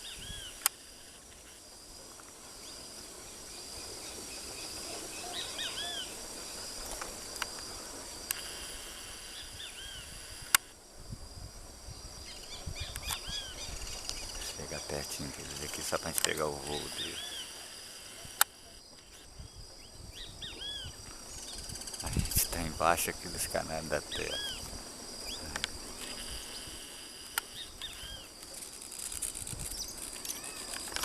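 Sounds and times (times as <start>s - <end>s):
insects hissing: 0.0s - 31.0s
sharp click: 12.9s - 13.2s.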